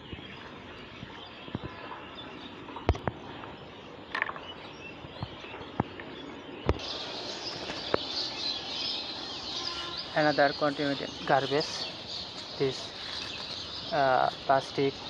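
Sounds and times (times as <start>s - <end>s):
bird chirp: 0.0s - 15.0s
high insect hiss: 6.8s - 14.4s.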